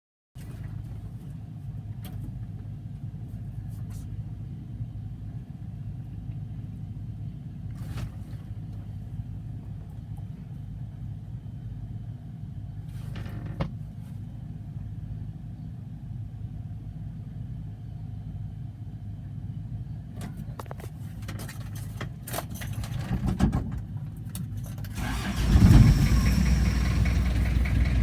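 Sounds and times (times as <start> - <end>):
diesel engine rumbling: 24.5 - 28.0.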